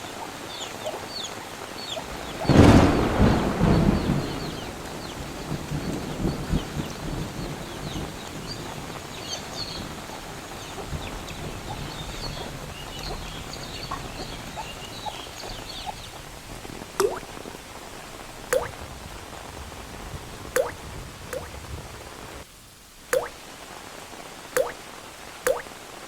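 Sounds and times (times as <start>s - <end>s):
steady rain: 0.0s - 26.0s
thunder rumble: 2.0s - 22.4s
birds chirping: 5.8s - 17.8s, 18.4s - 18.8s
water drip: 11.7s - 16.1s, 16.9s - 17.6s, 18.5s - 18.8s, 20.5s - 21.6s, 23.0s - 23.4s, 24.6s - 24.8s, 25.4s - 25.8s.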